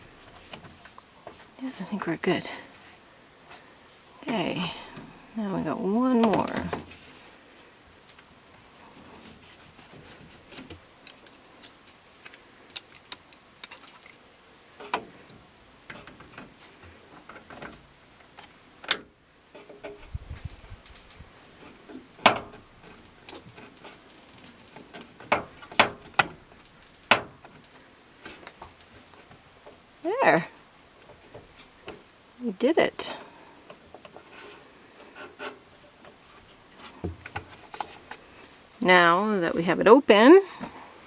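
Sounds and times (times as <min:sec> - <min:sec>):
tools and plastic parts clicking: 0:12.2 - 0:14.2.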